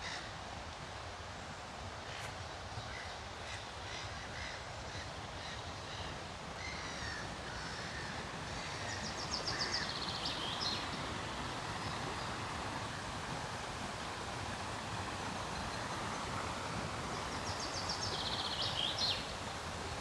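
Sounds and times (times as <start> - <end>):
forest birds calling: 2.8 - 11.0, 17.1 - 19.3.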